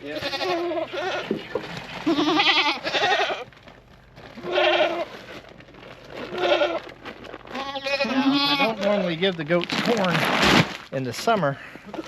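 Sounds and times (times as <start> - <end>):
goats bleating: 0.0 - 3.6, 4.3 - 5.2, 6.2 - 9.3.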